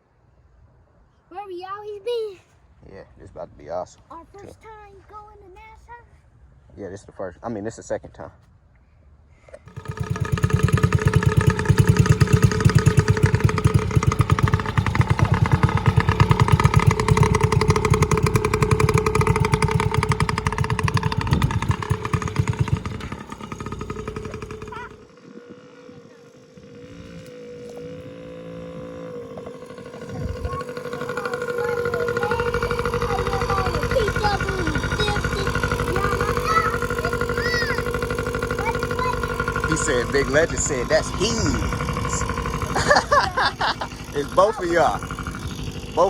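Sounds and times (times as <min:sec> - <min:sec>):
off-road vehicle engine running: 0:09.6 - 0:46.0.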